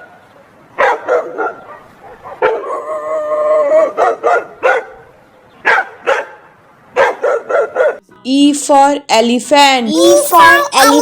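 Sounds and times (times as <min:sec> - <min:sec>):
dog barking: 0:00.8 - 0:02.9, 0:03.6 - 0:08.0
dog howling: 0:02.6 - 0:04.2.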